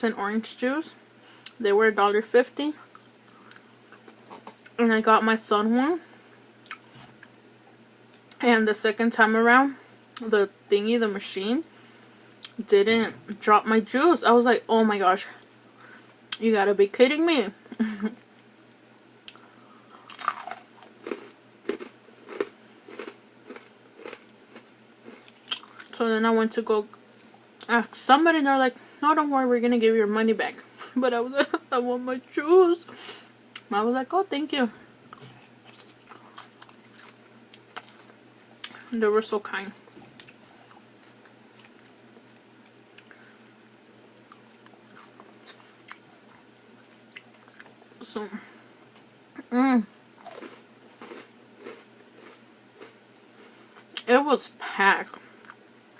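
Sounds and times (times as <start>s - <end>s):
faint steady hum: 0.0s - 55.9s
person chewing food: 19.2s - 25.9s, 35.1s - 38.8s, 39.9s - 43.3s, 44.2s - 47.8s, 50.2s - 54.0s.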